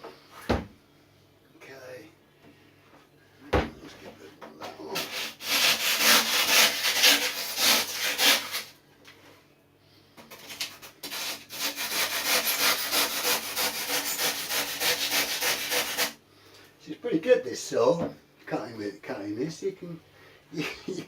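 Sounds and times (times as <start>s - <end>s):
hand saw cutting foam: 4.9s - 8.7s, 10.3s - 16.2s.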